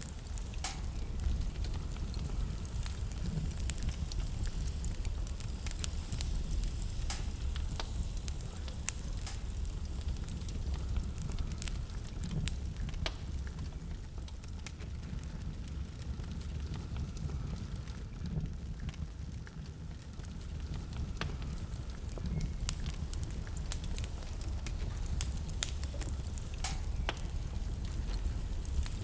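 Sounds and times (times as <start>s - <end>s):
fire crackles and pops: 0.0s - 29.0s
low rumble of flames: 0.0s - 29.0s.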